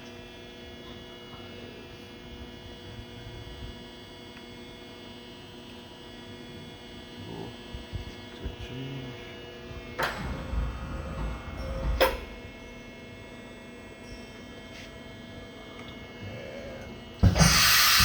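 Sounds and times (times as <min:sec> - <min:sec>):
machine humming: 0:06.4 - 0:18.0.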